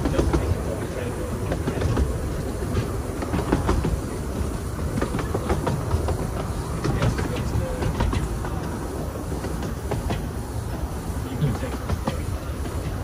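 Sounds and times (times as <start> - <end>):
railway carriage rumbling on track: 0.0 - 13.0
wheels clicking on rails: 0.0 - 13.0.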